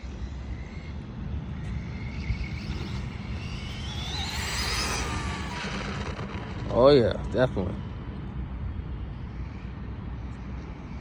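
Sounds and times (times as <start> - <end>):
rc motorcycle motor whine: 0.0 - 8.9
steady low rumble: 1.3 - 9.4.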